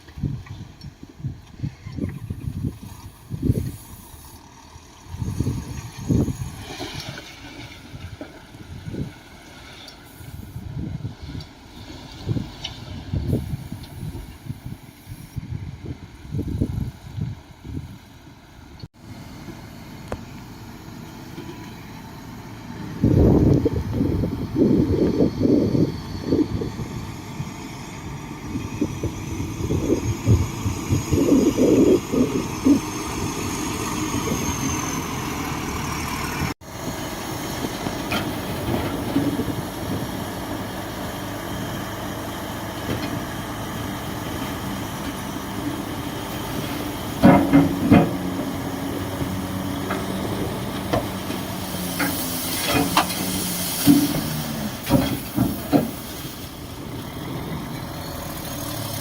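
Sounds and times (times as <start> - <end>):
bulldozer engine running: 0.0 - 59.0
hiss: 3.5 - 4.4, 9.8 - 10.6, 51.6 - 56.7
clanks and knocks: 47.1 - 48.4.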